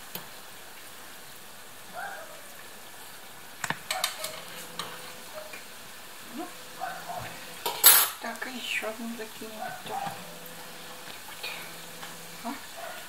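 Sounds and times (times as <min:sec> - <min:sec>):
dough frying in oil: 0:00.0 - 0:13.0.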